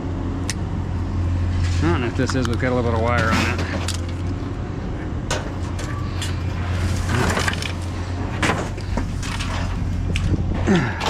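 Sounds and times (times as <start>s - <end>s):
vehicle engine humming: 0.0s - 11.0s
sharp knocks and rattles: 5.3s - 10.8s.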